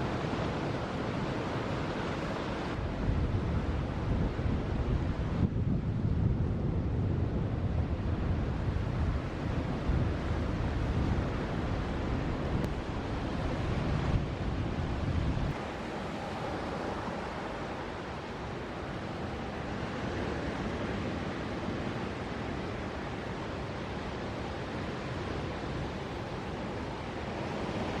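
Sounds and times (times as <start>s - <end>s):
ocean surf breaking: 0.0s - 5.5s, 7.5s - 28.0s
wind buffeting microphone: 0.0s - 15.6s.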